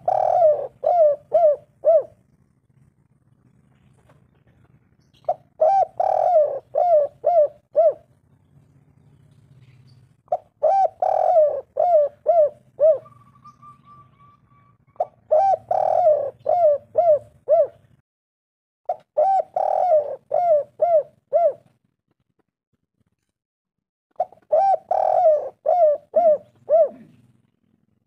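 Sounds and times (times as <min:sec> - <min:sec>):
dove cooing: 0:00.0 - 0:02.6, 0:03.5 - 0:08.2, 0:09.6 - 0:18.0, 0:18.9 - 0:21.7, 0:24.2 - 0:27.8
faint high chirp: 0:13.0 - 0:15.1.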